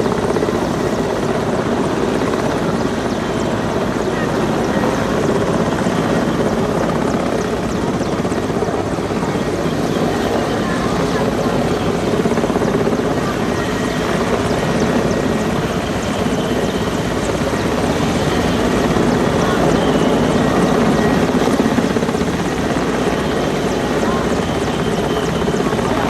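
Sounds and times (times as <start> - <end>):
helicopter rotor blades chopping: 0.0 - 26.0.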